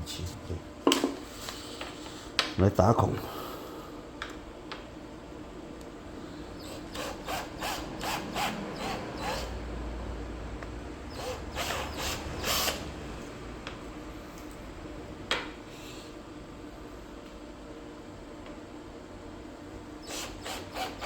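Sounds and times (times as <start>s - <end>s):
small drill scraping plastic: 6.6s - 9.5s, 11.1s - 12.8s, 20.0s - 21.0s.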